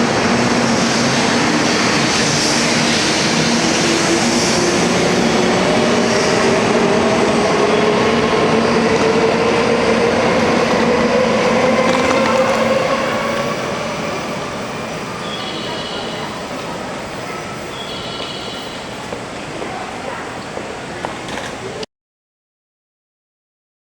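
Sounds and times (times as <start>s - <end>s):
electric train running on rails: 0.0s - 21.8s
train motor whine rising: 3.2s - 16.7s.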